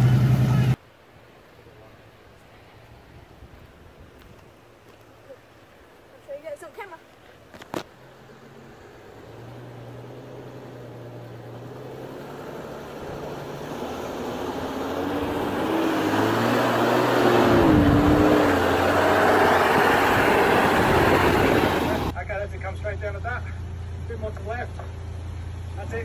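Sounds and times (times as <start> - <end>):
vehicle engine approaching: 0.0 - 0.8, 7.9 - 26.0.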